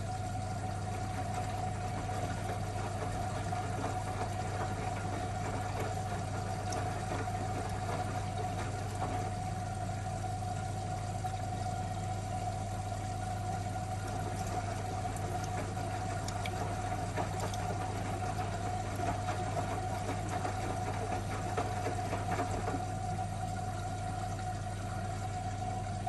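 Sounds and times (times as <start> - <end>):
washing machine hum and whine: 0.0 - 26.0
faint clicks and rattles: 1.2 - 9.4, 14.0 - 23.0.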